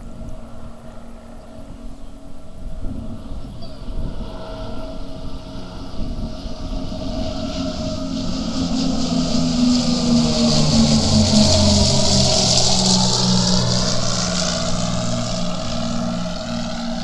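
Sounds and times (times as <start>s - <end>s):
aircraft engine drone: 0.0s - 17.0s.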